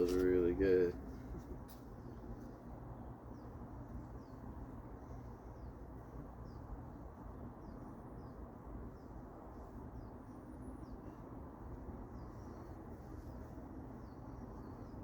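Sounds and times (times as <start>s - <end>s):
steady low hum: 0.0s - 15.0s
bird chirping: 3.2s - 6.8s, 7.6s - 11.4s, 12.0s - 15.0s.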